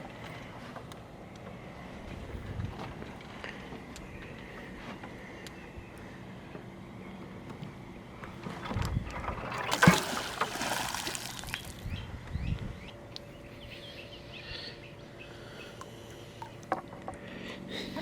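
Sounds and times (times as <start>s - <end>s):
water splashing: 9.4s - 11.8s
faint bird chirps: 11.6s - 15.8s.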